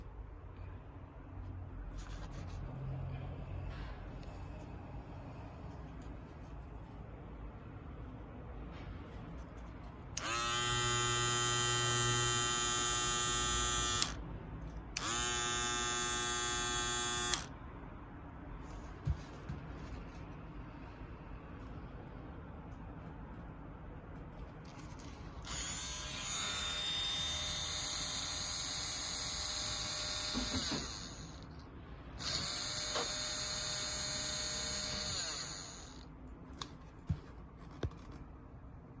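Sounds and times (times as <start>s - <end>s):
small electric motor whining: 10.2s - 14.2s, 15.0s - 17.5s, 25.4s - 31.5s, 32.2s - 36.0s.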